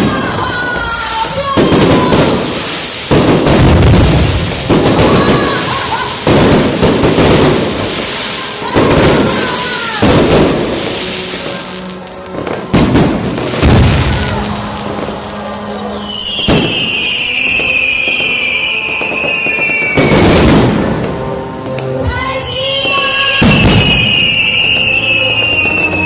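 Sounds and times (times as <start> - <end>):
fireworks booming: 0.0 - 21.4, 22.7 - 26.0
firework whistle falling in pitch: 13.7 - 21.1, 22.4 - 26.0.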